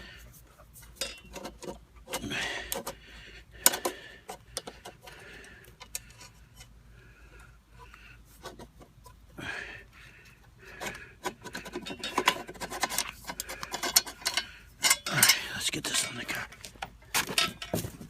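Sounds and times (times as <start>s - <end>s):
metal hardware clicks and knocks: 1.0s - 3.0s, 10.8s - 18.0s.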